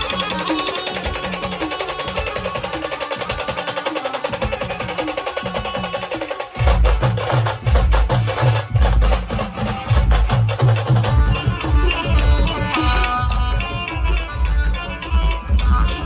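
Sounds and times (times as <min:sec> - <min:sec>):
band music: 0:00.0 - 0:16.0
rapid percussion ticking: 0:00.0 - 0:16.0
heavy bass drum beat: 0:04.4 - 0:16.0.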